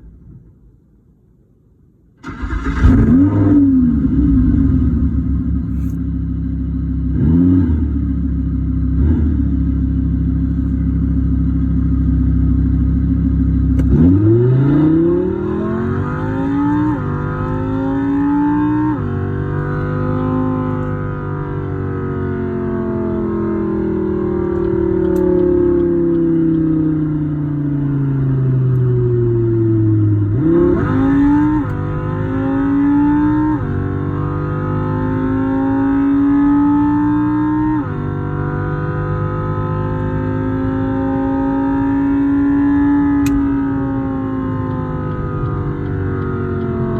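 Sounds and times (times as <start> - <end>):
artificial engine sound revving: 13.8 - 27.3.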